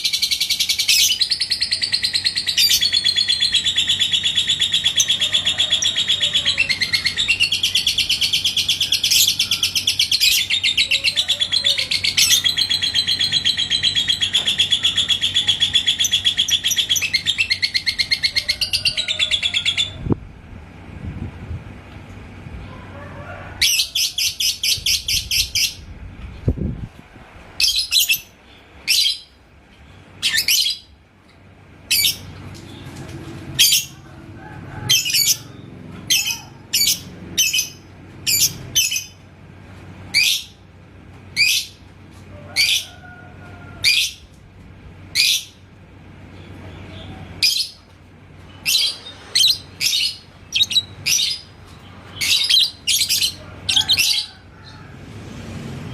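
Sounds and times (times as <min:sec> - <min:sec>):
lovebird high chirps: 0:00.0 - 0:20.0, 0:27.6 - 0:29.3, 0:48.6 - 0:51.5, 0:52.1 - 0:54.2.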